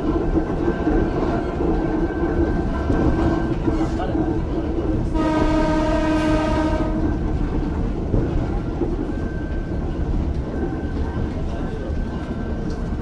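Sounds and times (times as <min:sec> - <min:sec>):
railcar running rumble: 0:00.0 - 0:13.0
train horn: 0:05.1 - 0:07.3.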